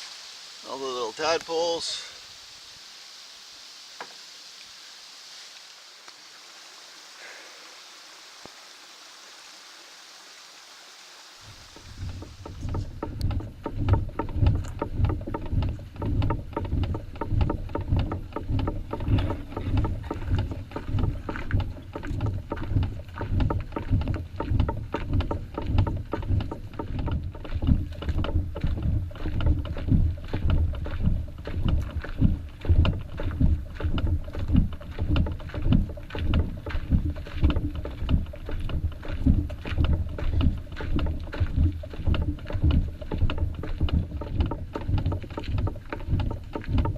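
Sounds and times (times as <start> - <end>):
footsteps walking on trail: 11.4 - 46.9.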